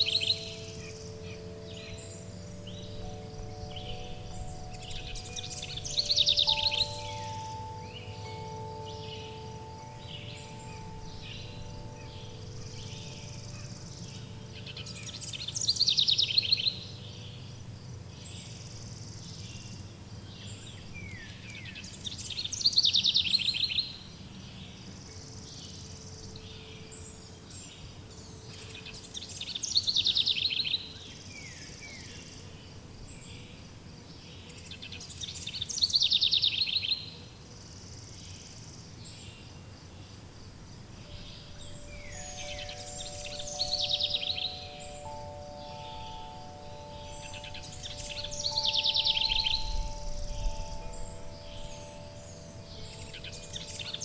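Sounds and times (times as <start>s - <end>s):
ringing chime tones: 0.0s - 17.6s, 41.0s - 54.0s
steady low hum: 0.0s - 19.2s
faint bird chirps: 0.0s - 33.6s, 41.0s - 54.0s
songbird trilled song: 0.0s - 54.0s.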